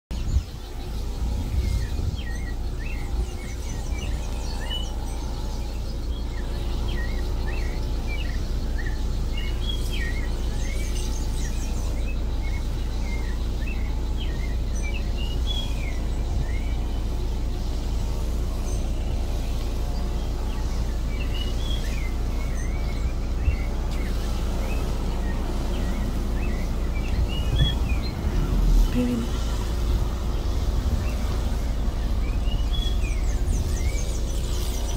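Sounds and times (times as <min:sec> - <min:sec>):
bird chirping: 0:00.1 - 0:34.9
faint higher bird chirps: 0:00.1 - 0:34.9
low rumble: 0:00.1 - 0:34.9.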